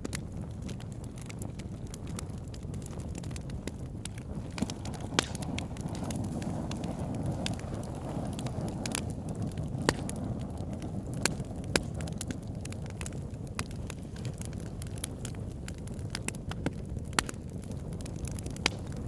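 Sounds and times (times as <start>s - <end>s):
burning wood popping: 0.0s - 19.0s
fire crackling: 0.0s - 19.0s
wood fire flames rushing: 0.0s - 19.0s.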